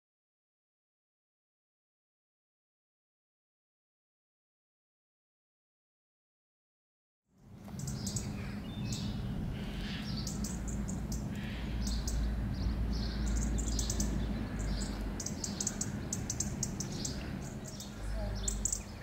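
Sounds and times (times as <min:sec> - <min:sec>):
small birds chirping: 0:07.4 - 0:19.0
steady low rumble: 0:07.4 - 0:19.0.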